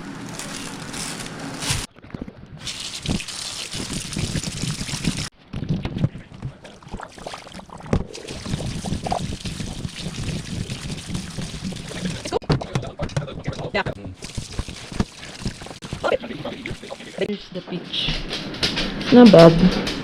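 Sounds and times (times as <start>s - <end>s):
water running from tap: 2.6s - 5.3s, 8.1s - 12.4s, 14.2s - 17.3s
water splashing over fruit: 2.6s - 5.3s, 6.6s - 12.4s, 14.2s - 17.2s.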